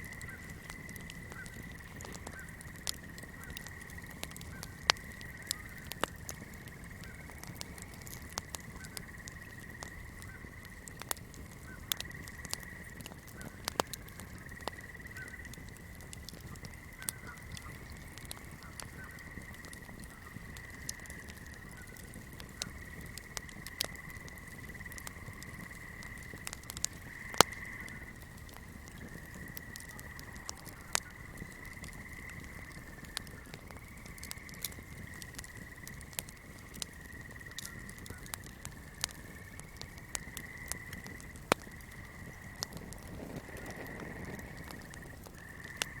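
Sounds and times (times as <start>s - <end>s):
flame crackling: 0.0s - 46.0s
short frog calls: 0.0s - 46.0s
high-pitched chorus of frogs: 16.8s - 28.2s, 29.0s - 46.0s.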